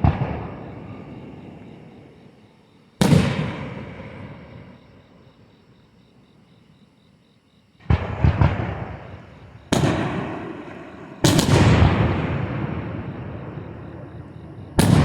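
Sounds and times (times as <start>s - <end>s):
fireworks booming: 0.0s - 2.3s, 3.0s - 5.0s, 7.8s - 15.0s.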